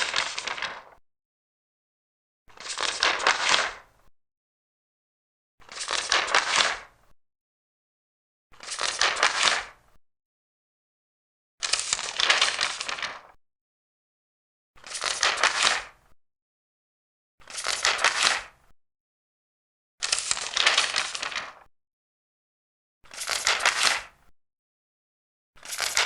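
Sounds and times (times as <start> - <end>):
paper pages turning: 0.0 - 1.0, 8.6 - 9.7, 11.7 - 13.4, 14.8 - 15.9, 17.5 - 18.5, 20.0 - 21.7, 23.1 - 24.1, 25.6 - 26.0.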